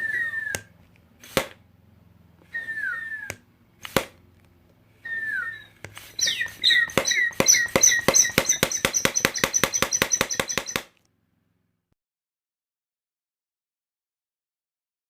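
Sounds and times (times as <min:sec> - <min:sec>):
toy gun electronic zap: 0:06.2 - 0:10.9
toy gun rapid clicks and beeps: 0:06.2 - 0:10.9.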